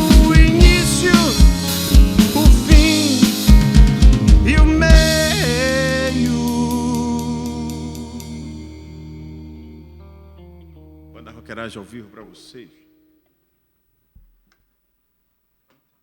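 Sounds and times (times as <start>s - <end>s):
live rock band playing: 0.0s - 11.1s
held final chord ringing: 3.5s - 11.3s.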